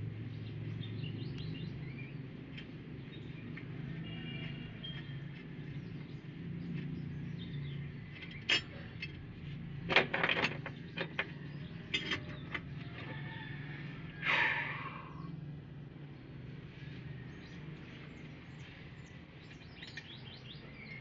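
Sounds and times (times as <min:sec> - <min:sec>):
sharp clicks and knocks: 0:08.1 - 0:13.2.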